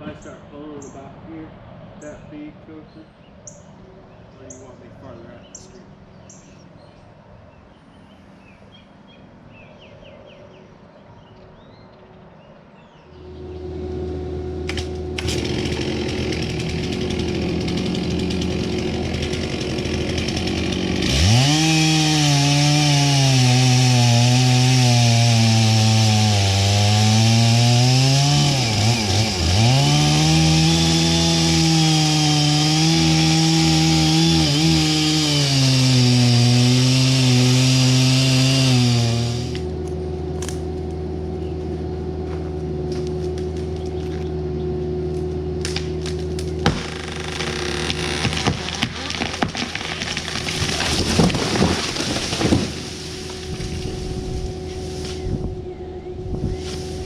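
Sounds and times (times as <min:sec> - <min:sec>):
engine running steadily: 0:13.1 - 0:21.3, 0:39.2 - 0:49.1, 0:52.2 - 0:57.0
chainsaw cutting wood: 0:13.6 - 0:40.6, 0:45.6 - 0:55.3.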